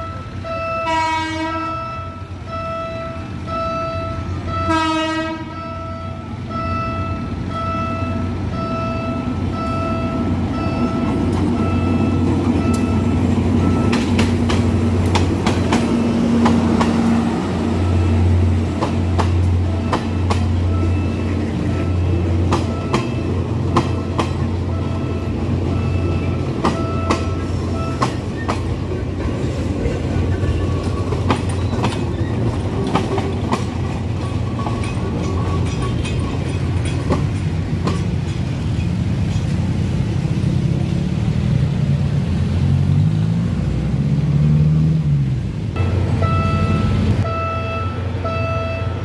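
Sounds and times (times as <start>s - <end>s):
diesel locomotive drone: 0.0s - 49.0s
wheels clacking over rail joints: 9.6s - 42.0s.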